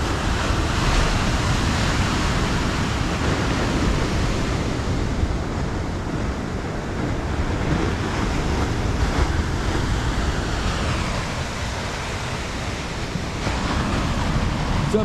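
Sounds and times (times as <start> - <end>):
ocean surf washing: 0.0 - 15.0
wind buffeting microphone: 0.0 - 15.0.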